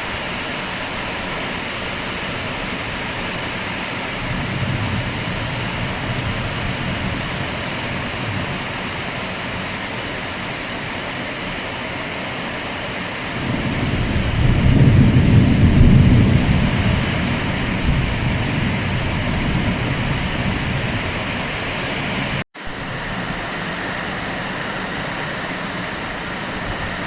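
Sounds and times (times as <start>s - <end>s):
heavy rain falling: 0.0s - 27.0s
low rumble of thunder: 0.2s - 9.9s, 13.3s - 23.4s.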